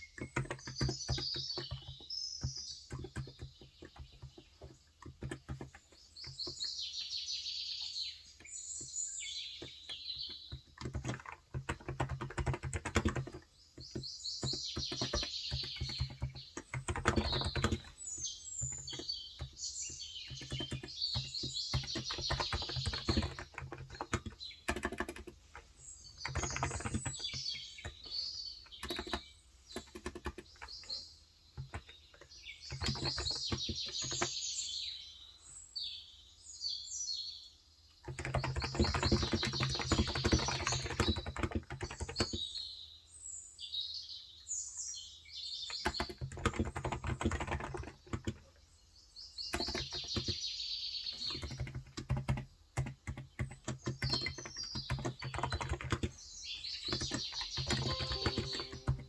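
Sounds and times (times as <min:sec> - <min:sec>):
keyboard typing: 0:00.0 - 0:06.6, 0:09.6 - 0:30.9, 0:31.6 - 0:34.3, 0:38.1 - 0:42.4, 0:45.8 - 0:48.4, 0:49.5 - 0:50.4, 0:51.2 - 0:56.2, 0:56.8 - 0:59.0
small birds chirping: 0:00.0 - 0:59.0.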